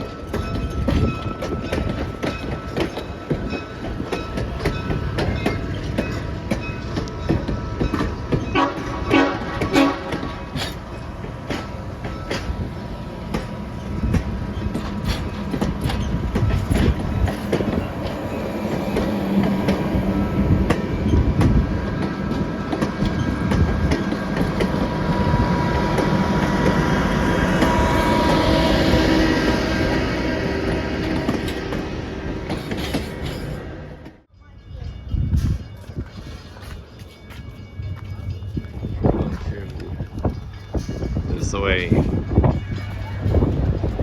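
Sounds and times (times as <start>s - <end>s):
train wheels clicking over rail joints: 0.0s - 34.3s
train rumble: 0.0s - 44.0s.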